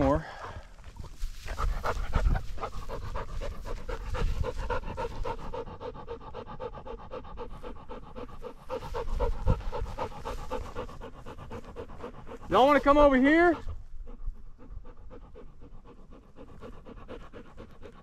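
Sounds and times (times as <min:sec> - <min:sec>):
dog panting: 0:00.3 - 0:18.0.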